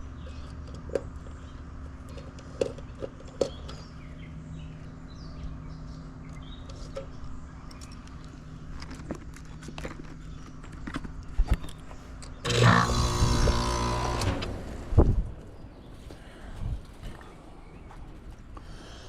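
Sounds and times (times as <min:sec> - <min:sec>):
loud electrical buzz with hiss: 0:12.5 - 0:15.1.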